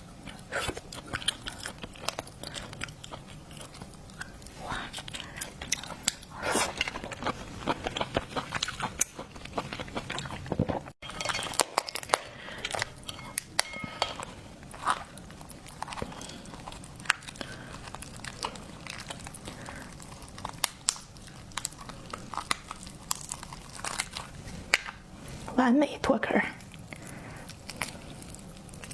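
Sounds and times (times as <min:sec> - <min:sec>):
person eating: 0:00.0 - 0:25.4, 0:26.6 - 0:28.9
utensils clinking on dishes: 0:11.0 - 0:14.3
seafood shell cracking: 0:11.1 - 0:25.0.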